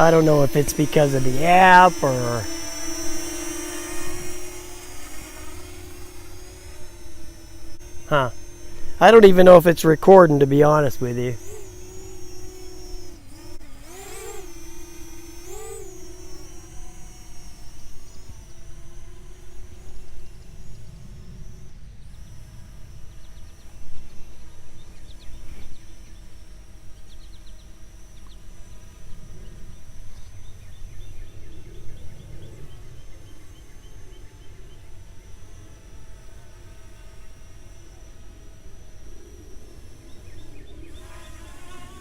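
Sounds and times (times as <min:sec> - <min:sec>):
drone propellers humming: 0:00.0 - 0:42.0.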